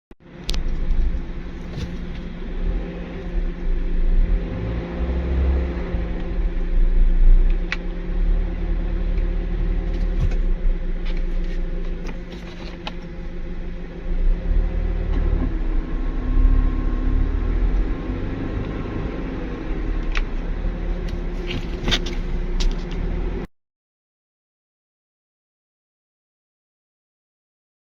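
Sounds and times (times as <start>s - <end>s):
low engine rumble: 0.2s - 23.5s
droning belt hum: 0.3s - 4.3s.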